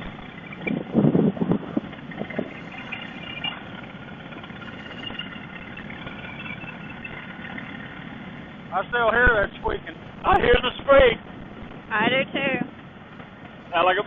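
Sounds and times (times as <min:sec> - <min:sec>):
wind noise: 0:00.0 - 0:13.5
motorcycle engine: 0:00.0 - 0:13.8
wind gusts: 0:00.0 - 0:14.0
faint high squeaks: 0:02.3 - 0:07.9.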